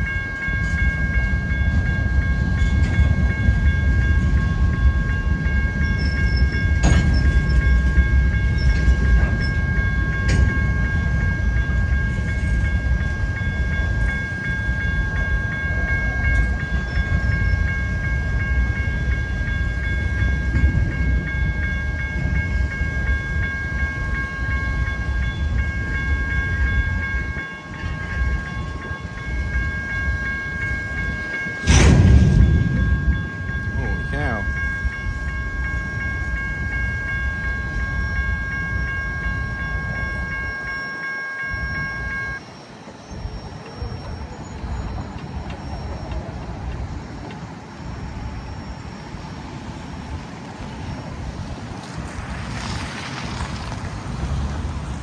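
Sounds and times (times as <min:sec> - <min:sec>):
freight cars rumbling on rails: 0:00.0 - 0:40.8, 0:41.4 - 0:55.0
high-pitched whine: 0:14.7 - 0:55.0
wheels clicking over rail joints: 0:42.4 - 0:55.0.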